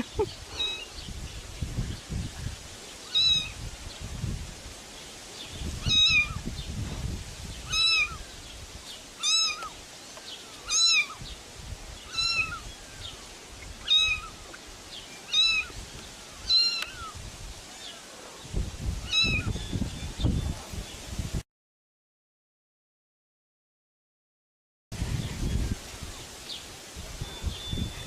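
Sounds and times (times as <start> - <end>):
cat meowing: 0.6 - 0.8, 3.1 - 3.6, 5.8 - 6.4, 7.7 - 8.2, 9.2 - 9.7, 10.7 - 11.2, 12.1 - 12.6, 13.8 - 14.4, 15.3 - 15.7, 16.5 - 17.2, 19.1 - 19.5.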